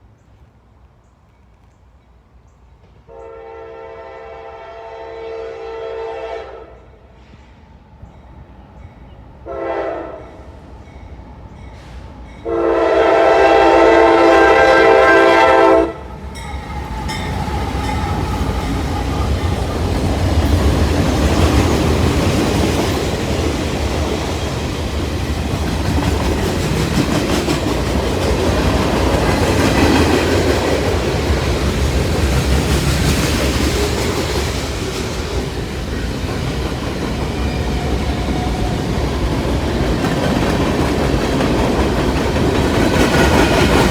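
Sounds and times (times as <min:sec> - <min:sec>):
locomotive horn blasts: 0:03.1 - 0:07.0, 0:09.5 - 0:10.4, 0:12.4 - 0:16.1.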